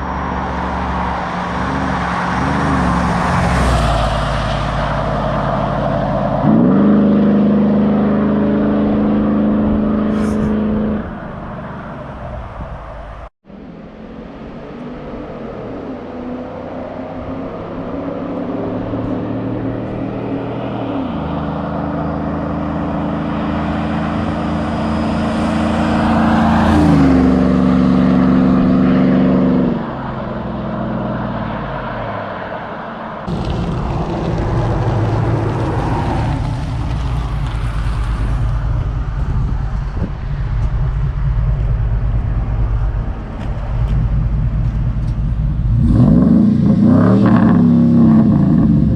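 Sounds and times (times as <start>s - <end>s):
car engine revving: 0.0s - 12.3s, 33.2s - 48.9s
low rough exhaust rumble: 33.3s - 46.7s.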